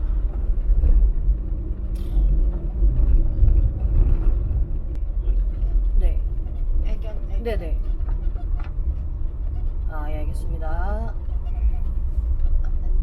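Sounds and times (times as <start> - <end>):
van engine and road noise: 0.0 - 13.0.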